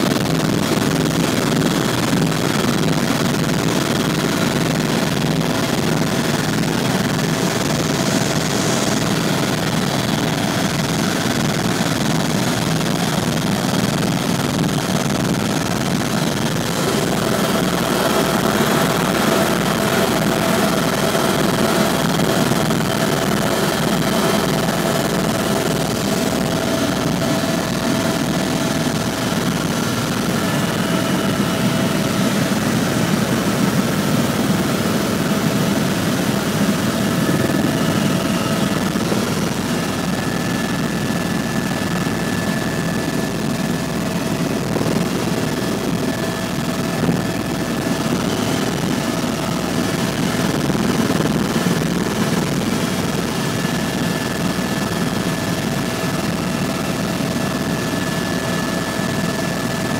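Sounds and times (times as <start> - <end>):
helicopter engine and rotor drone: 0.0 - 59.9
high whine: 14.5 - 59.3.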